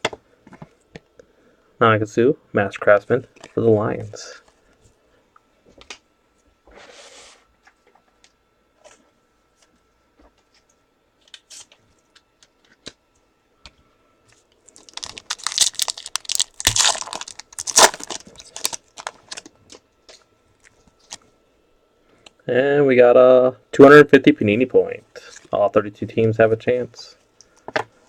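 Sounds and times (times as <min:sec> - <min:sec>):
wrapper crackling and tearing: 0:14.7 - 0:19.5.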